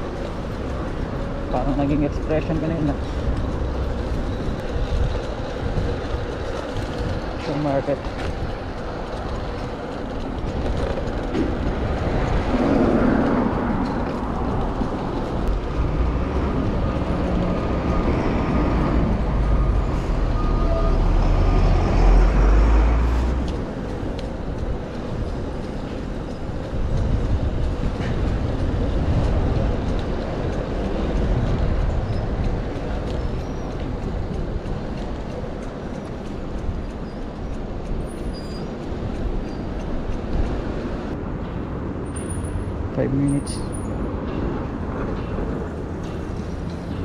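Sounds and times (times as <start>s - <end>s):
city traffic: 0.0s - 47.0s
wind and road noise: 0.0s - 47.0s.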